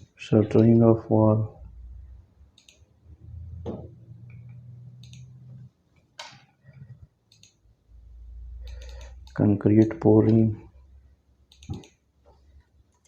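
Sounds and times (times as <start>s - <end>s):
low steady hum: 0.0s - 13.0s
keyboard and mouse clicks: 2.5s - 2.9s, 4.3s - 5.4s, 6.0s - 7.6s, 8.6s - 10.4s, 11.5s - 12.0s.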